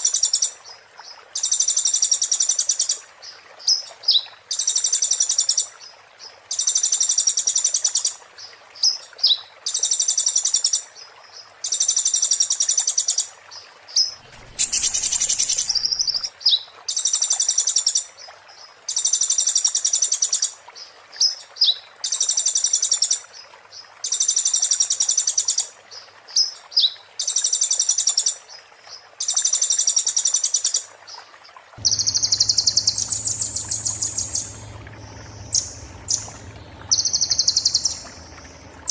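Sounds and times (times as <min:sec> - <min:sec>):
bird chirps: 0:14.2 - 0:16.3, 0:31.8 - 0:38.9
brief rushing noise: 0:14.2 - 0:16.3
low hum: 0:14.2 - 0:16.3, 0:31.8 - 0:38.9
songbird trilling: 0:14.2 - 0:16.3, 0:31.8 - 0:38.9.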